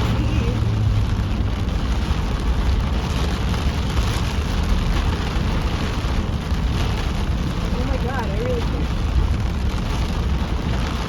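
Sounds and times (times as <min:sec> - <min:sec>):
car driving on wet road: 0:00.0 - 0:11.0
heavy rain on a car: 0:00.0 - 0:11.0.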